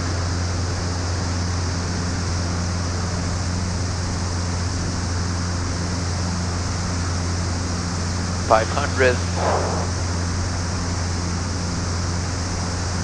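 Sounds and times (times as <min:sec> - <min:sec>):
piston engines droning: 0:08.0 - 0:11.1
airflow hiss: 0:08.5 - 0:10.5.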